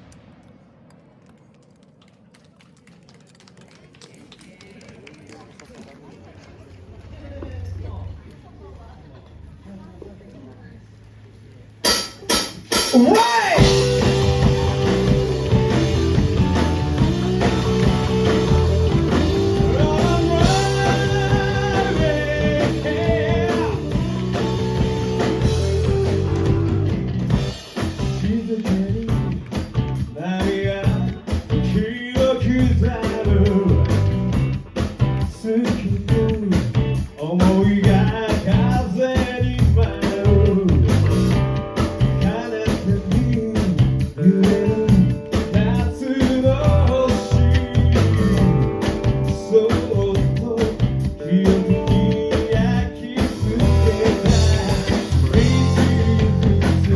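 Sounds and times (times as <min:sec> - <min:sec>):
drums: 0:10.9 - 0:56.9
bass guitar: 0:11.9 - 0:56.9
electric guitar: 0:12.3 - 0:56.9
person singing: 0:12.9 - 0:27.0, 0:49.3 - 0:56.9.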